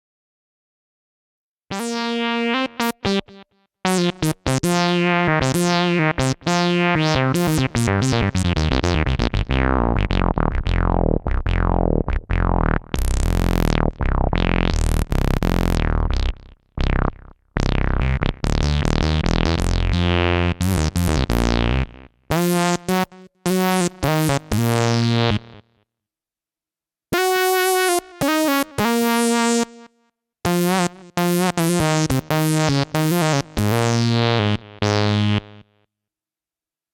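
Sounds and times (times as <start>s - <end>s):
synthesizer funk notes: 1.7s - 25.5s.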